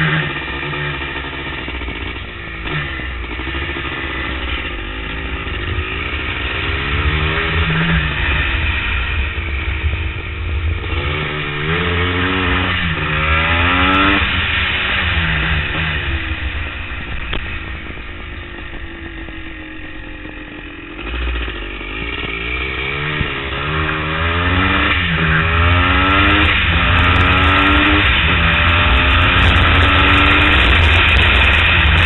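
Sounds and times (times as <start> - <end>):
motorcycle engine accelerating: 0.0 - 32.0
wind rumble on microphone: 15.0 - 20.6, 25.1 - 32.0.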